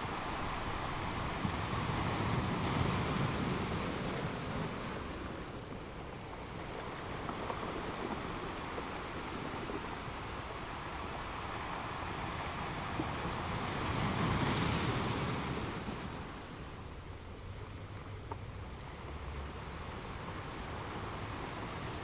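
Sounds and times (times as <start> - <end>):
wave washing up: 0.0 - 17.1
sea surf: 0.0 - 17.6, 18.8 - 22.0
wind: 0.0 - 22.0.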